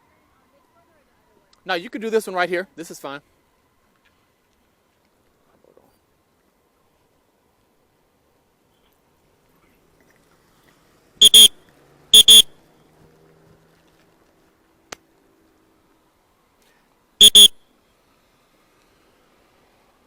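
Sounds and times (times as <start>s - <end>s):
whistle blasts: 11.2s - 11.6s, 12.2s - 12.5s, 17.2s - 17.6s.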